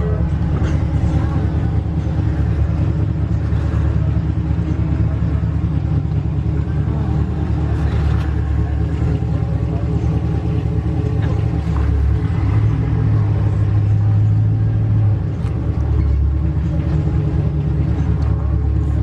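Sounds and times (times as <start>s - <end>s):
deep exhaust rumble: 0.0s - 19.0s.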